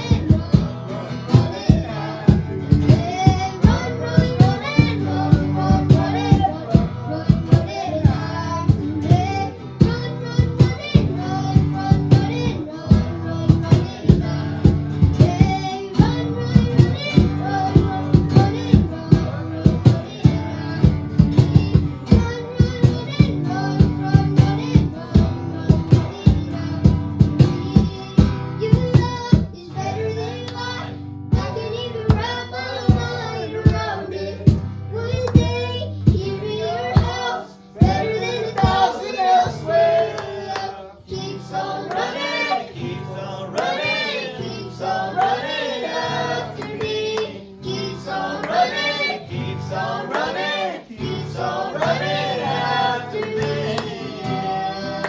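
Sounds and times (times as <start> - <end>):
worship band playing: 0.0 - 28.1, 30.2 - 55.0
steady drum beat: 0.0 - 29.6, 31.4 - 36.4, 37.8 - 40.0
person singing: 0.0 - 55.0.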